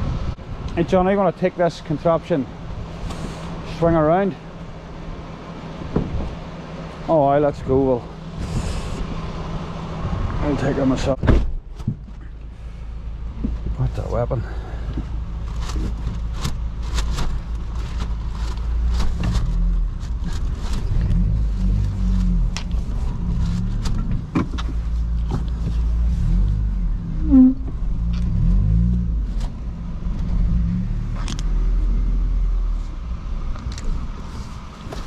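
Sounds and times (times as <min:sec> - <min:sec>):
vehicle engine running: 0:00.0 - 0:35.0
short squeal: 0:27.1 - 0:27.8.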